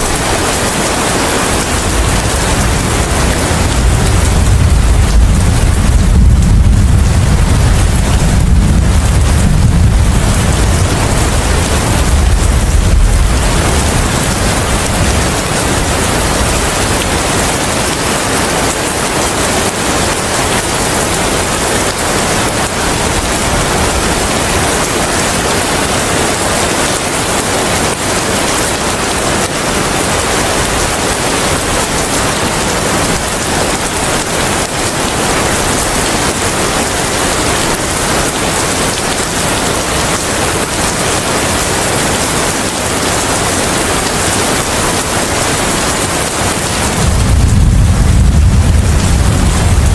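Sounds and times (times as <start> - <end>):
dense rainfall: 0.0 - 49.9
low rumble: 1.9 - 15.4, 46.9 - 49.9.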